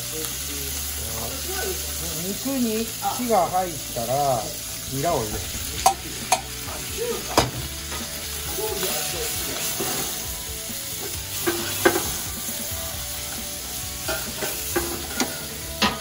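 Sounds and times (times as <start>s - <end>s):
meat sizzling in a frying pan: 0.0s - 16.0s
chopsticks tapping pan: 11.4s - 12.1s, 14.0s - 16.0s.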